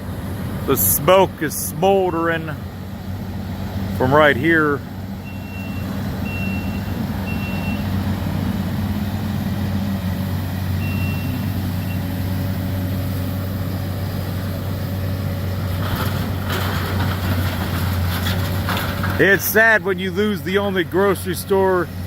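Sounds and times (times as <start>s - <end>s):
excavator diesel engine running: 0.0s - 22.0s
reversing alarm beeping: 5.2s - 8.0s, 10.8s - 12.2s.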